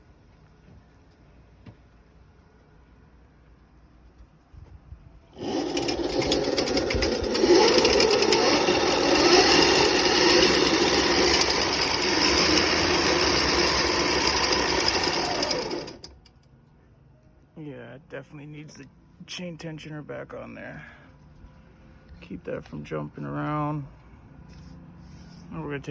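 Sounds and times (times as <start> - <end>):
loud chain rattle: 5.4 - 16.1
electric motor running: 5.4 - 16.2.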